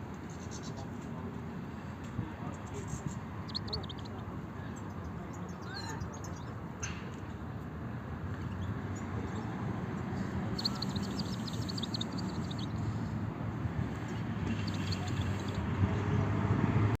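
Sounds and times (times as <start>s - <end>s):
finches twittering: 3.4s - 4.1s, 10.4s - 13.0s, 14.5s - 15.6s.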